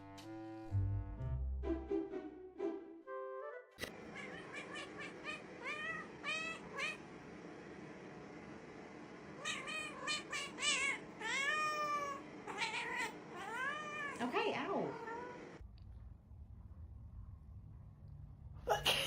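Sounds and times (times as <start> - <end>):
cat meowing: 4.0 - 7.0, 9.4 - 15.4.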